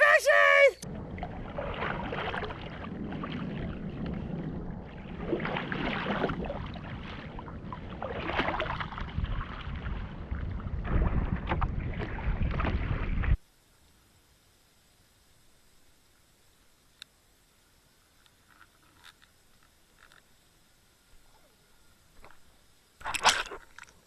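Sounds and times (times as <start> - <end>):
wind rumbling on microphone: 0.8 - 13.4
seawater splashing around a kayak: 0.9 - 13.4.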